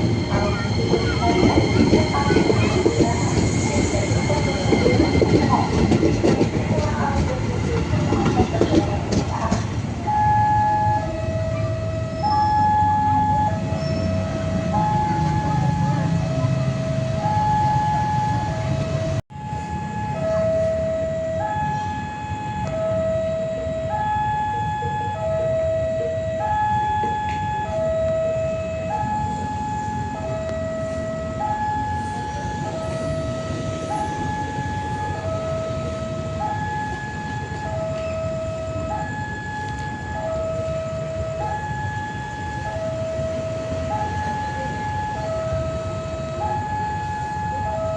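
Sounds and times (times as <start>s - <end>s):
electronic two-tone alarm: 10.0s - 47.9s.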